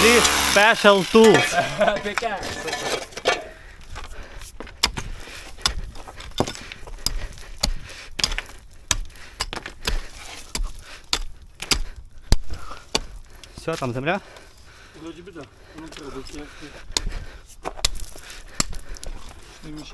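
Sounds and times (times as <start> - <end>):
pickaxe striking gravelly ground: 1.2 - 3.6, 4.8 - 13.2, 17.7 - 19.2.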